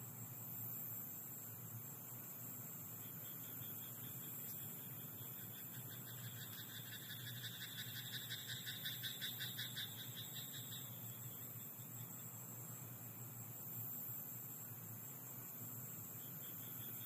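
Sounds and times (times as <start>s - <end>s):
faint steady hiss: 0.0s - 17.0s
frog croaking: 3.5s - 11.0s.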